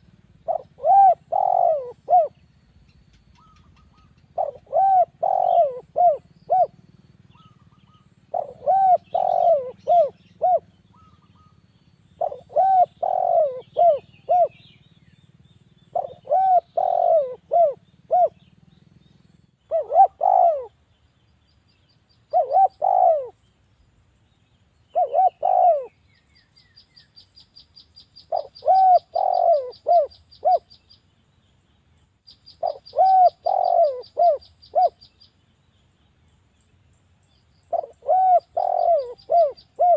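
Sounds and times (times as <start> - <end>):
dove cooing: 0.0 - 2.5, 3.3 - 11.6, 12.2 - 14.8, 15.9 - 18.6, 19.7 - 20.8, 22.3 - 23.4, 24.9 - 26.0, 28.2 - 30.7, 32.6 - 35.1, 37.7 - 39.9.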